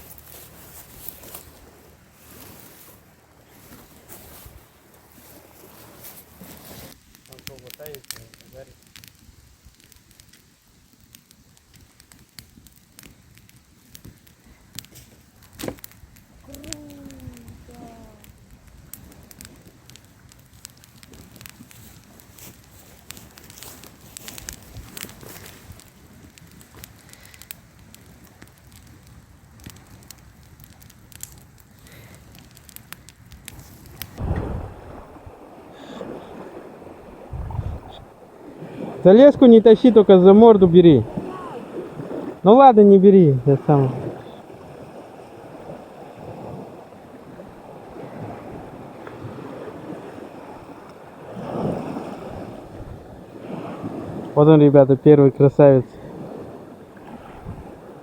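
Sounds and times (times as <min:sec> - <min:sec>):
wind rumble: 0:00.0 - 0:07.2, 0:33.2 - 0:54.4, 0:55.8 - 0:58.0
waves washing in: 0:00.0 - 0:08.8, 0:15.6 - 0:26.0, 0:33.5 - 0:58.0
campfire crackling and popping: 0:00.0 - 0:58.0.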